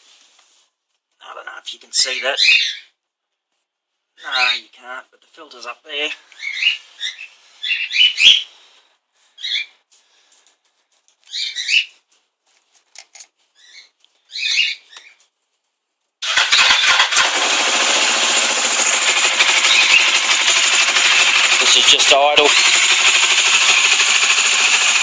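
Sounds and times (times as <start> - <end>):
motorcycle engine idling: 16.2 - 25.0.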